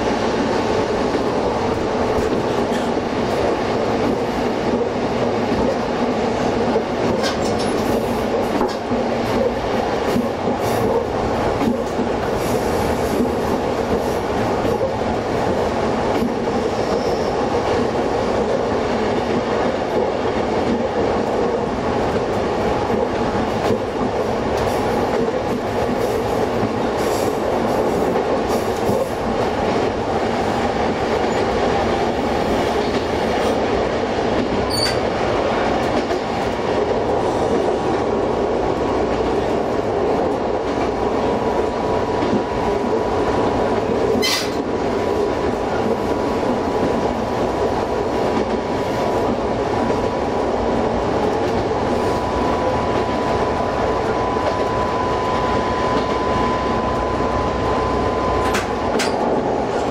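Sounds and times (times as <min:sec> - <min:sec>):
railcar engine and wheels rumbling: 0:00.0 - 0:59.9
wheels clicking over rail joints: 0:06.7 - 0:12.6
brief high squeak: 0:34.7 - 0:35.0, 0:44.2 - 0:44.6.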